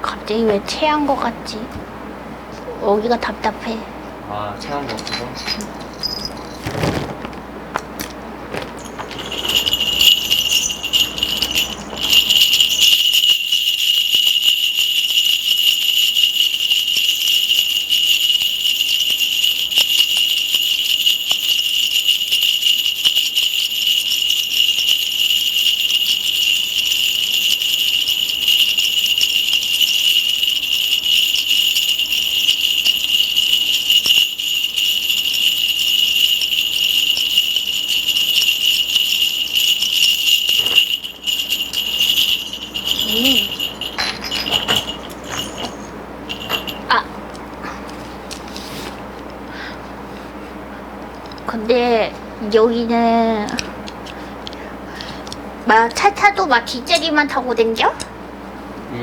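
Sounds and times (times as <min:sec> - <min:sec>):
ritual bells jingling: 0:04.9 - 0:07.1, 0:08.5 - 0:47.5.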